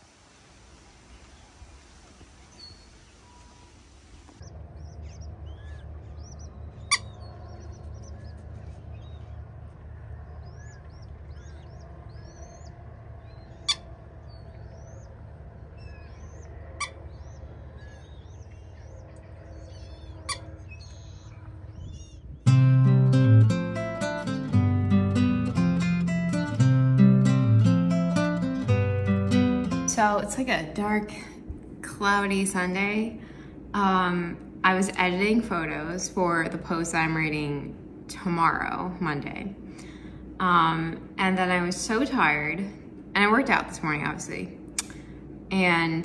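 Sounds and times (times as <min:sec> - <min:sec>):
faint hiss: 0:00.0 - 0:04.4
low steady rumble: 0:00.0 - 0:46.0
birds chirping: 0:00.6 - 0:31.2
sharp clicks: 0:44.8 - 0:45.0.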